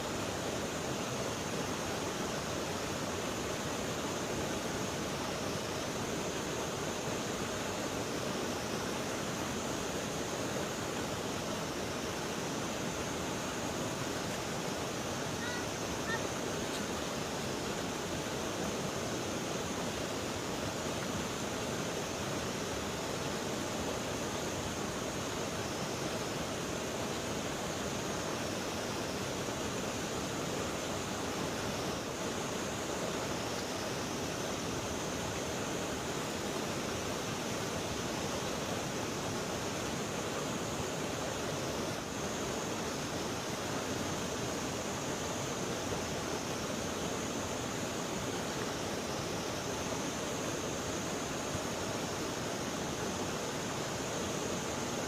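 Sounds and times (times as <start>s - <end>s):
flowing river water: 0.0s - 55.0s.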